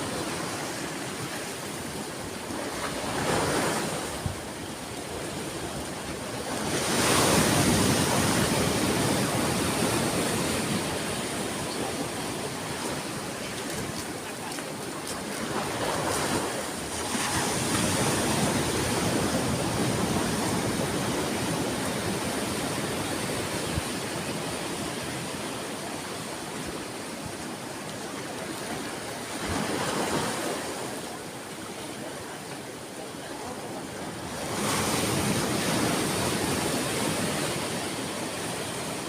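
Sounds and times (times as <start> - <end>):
ocean waves breaking: 0.0 - 39.0.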